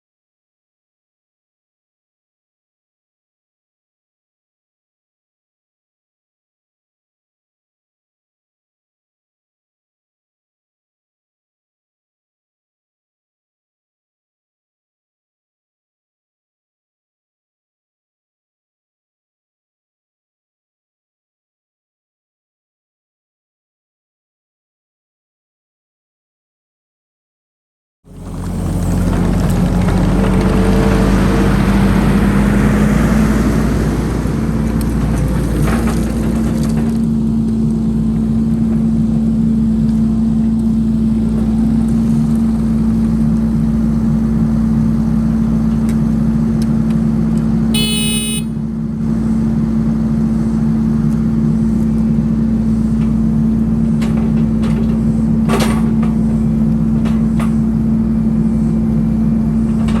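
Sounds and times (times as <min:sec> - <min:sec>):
brief high-pitched tone: 0:47.8 - 0:48.5.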